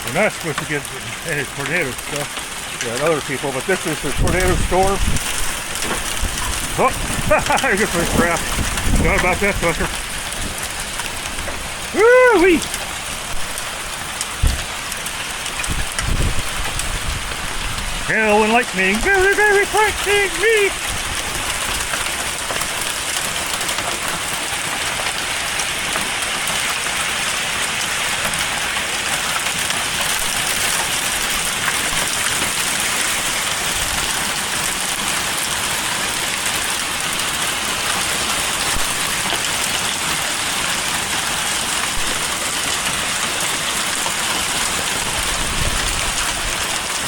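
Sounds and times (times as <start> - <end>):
hail and heavy rain: 0.0 - 47.0.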